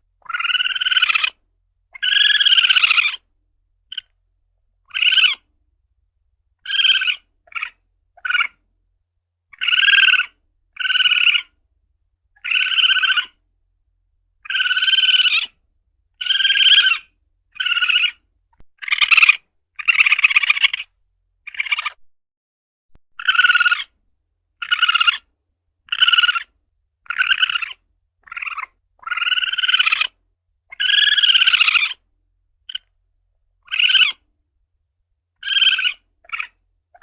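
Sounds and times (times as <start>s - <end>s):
civet buzzy calls: 0.2s - 1.4s, 2.0s - 3.2s, 4.9s - 5.4s, 6.6s - 8.6s, 9.5s - 11.5s, 12.4s - 13.3s, 14.5s - 15.5s, 16.2s - 18.2s, 18.8s - 20.9s, 21.5s - 22.0s, 23.2s - 23.9s, 24.6s - 25.2s, 25.9s - 26.5s, 27.1s - 32.0s, 33.6s - 34.2s, 35.4s - 37.0s.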